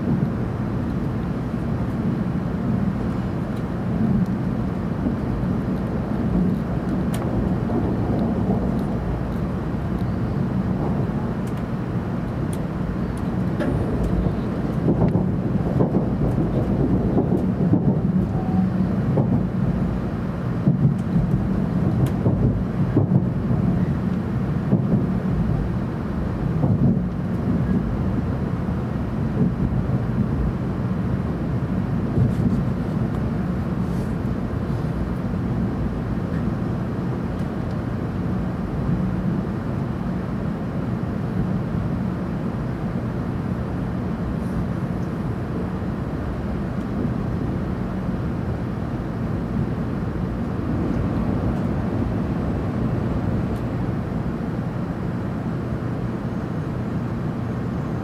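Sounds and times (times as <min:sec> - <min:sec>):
train rumble on rails: 0:00.0 - 0:58.0.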